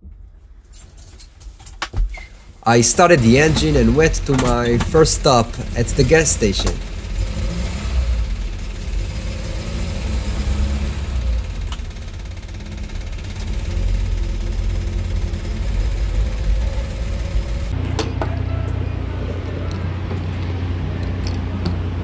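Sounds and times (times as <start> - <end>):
car engine running: 2.4 - 17.9.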